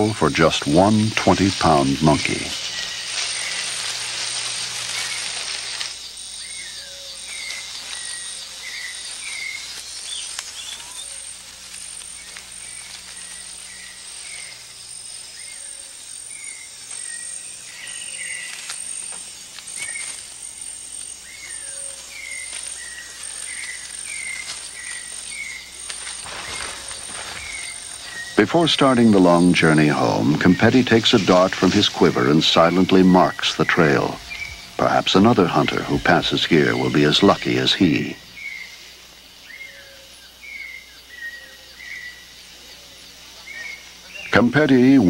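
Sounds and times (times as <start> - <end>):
loud rushing hiss: 0.0 - 39.4
high insect drone: 0.0 - 45.0
bird whistled calls: 21.2 - 29.4, 32.6 - 34.8, 39.4 - 42.3.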